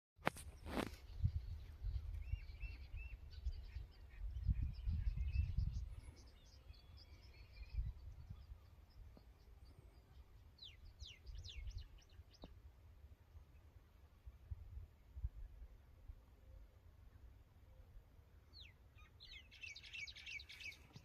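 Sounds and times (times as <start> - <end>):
small birds chirping: 0.4 - 12.6, 18.5 - 21.0
low rumbling on microphone: 1.1 - 6.3.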